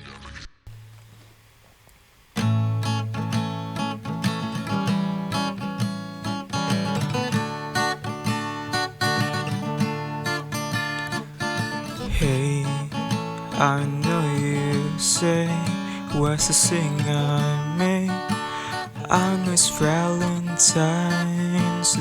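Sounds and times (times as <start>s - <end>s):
acoustic guitar strumming: 2.4s - 22.0s
faint low hum: 11.4s - 22.0s.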